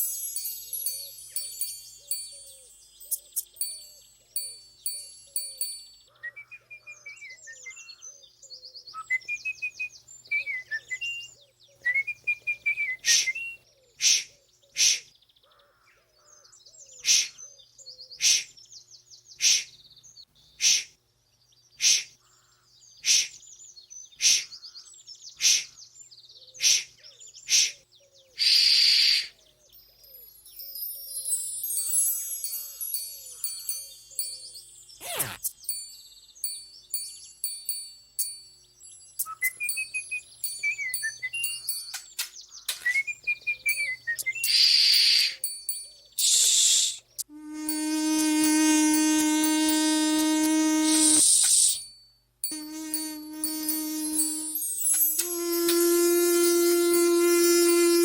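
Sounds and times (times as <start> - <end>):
bird-like chirping effects: 28.4 - 29.3, 30.0 - 35.7, 39.1 - 47.3
loud burst of hiss: 46.2 - 47.0, 49.1 - 51.8.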